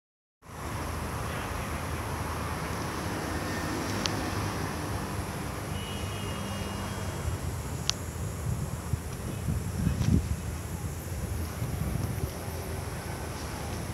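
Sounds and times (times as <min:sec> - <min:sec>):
faint high whine: 0:05.4 - 0:13.9
sharp clicks: 0:07.8 - 0:08.1
train rumbling along track: 0:10.2 - 0:13.9.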